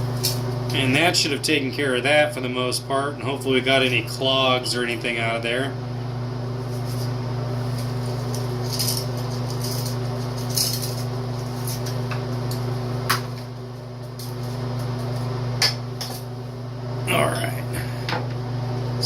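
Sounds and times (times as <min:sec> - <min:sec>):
steady low hum: 0:00.0 - 0:19.0
small metal parts clinking: 0:08.3 - 0:12.0.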